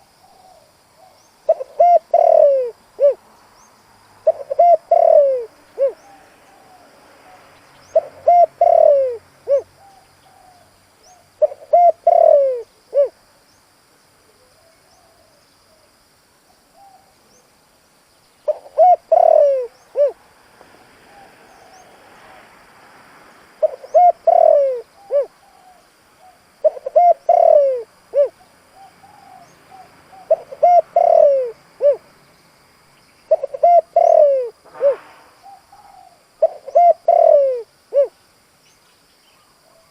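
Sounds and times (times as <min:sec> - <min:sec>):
dove cooing: 0:00.0 - 0:03.2, 0:04.2 - 0:13.2, 0:16.7 - 0:17.2, 0:18.5 - 0:20.2, 0:23.6 - 0:32.1, 0:33.3 - 0:38.2.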